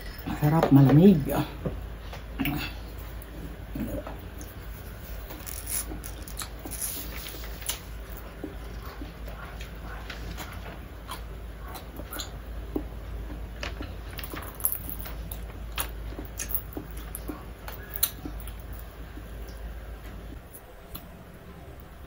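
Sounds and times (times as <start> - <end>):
steady low hum: 0.0 - 22.0
person chewing with mouth smacks: 3.7 - 19.6.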